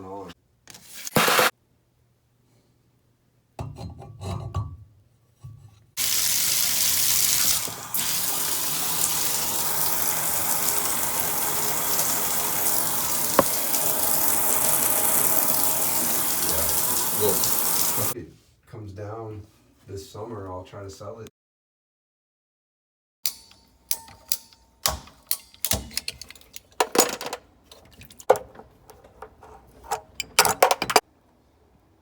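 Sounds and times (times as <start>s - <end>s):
water running from tub tap: 6.0s - 18.2s.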